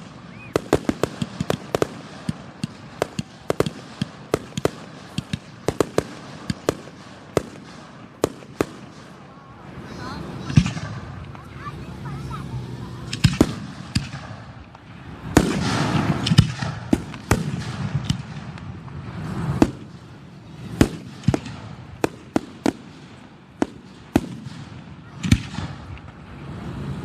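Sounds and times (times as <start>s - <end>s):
fireworks bangs: 0.0s - 27.0s
fireworks crackling: 0.0s - 27.0s.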